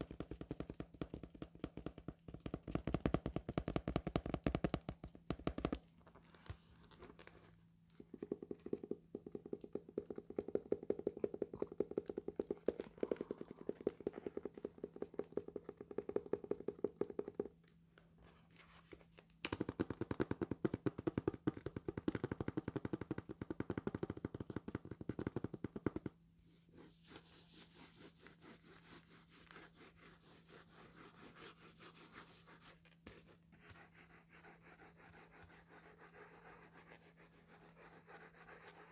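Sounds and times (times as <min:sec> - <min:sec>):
soft rubbing on paper: 0:26.4 - 0:38.9.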